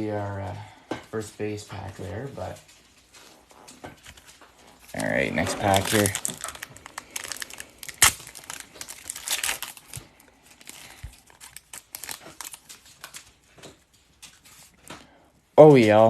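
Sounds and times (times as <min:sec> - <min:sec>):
cards rustling: 0:02.0 - 0:15.1
wrapper tearing and crinkling: 0:04.0 - 0:14.8.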